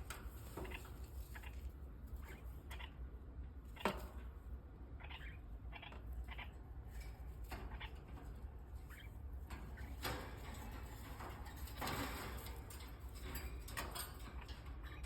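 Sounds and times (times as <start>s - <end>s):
cockatiel chirping: 5.0s - 6.5s.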